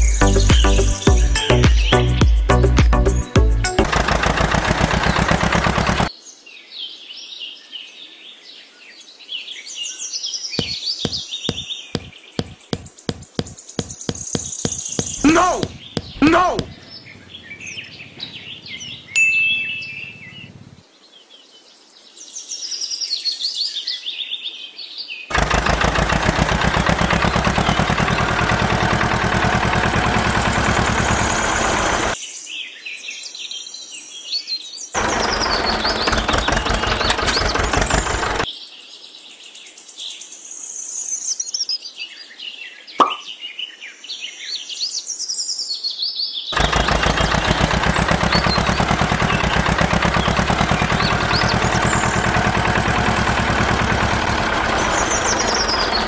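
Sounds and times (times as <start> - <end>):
small motor rattling: 3.6 - 6.1, 10.6 - 19.2, 25.3 - 32.2, 35.0 - 38.5, 46.6 - 56.0
birds chirping: 10.6 - 20.8, 25.3 - 32.2, 35.0 - 38.5, 46.6 - 56.0.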